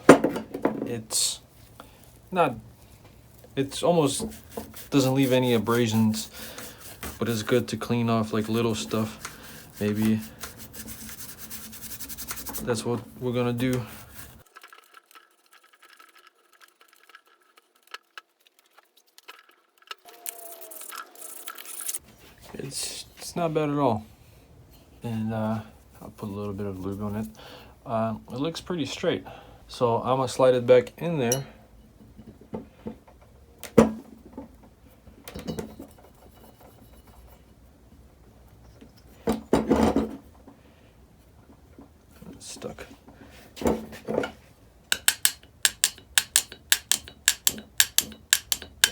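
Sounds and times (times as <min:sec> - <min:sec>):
small metal parts clicking: 0:44.9 - 0:48.9.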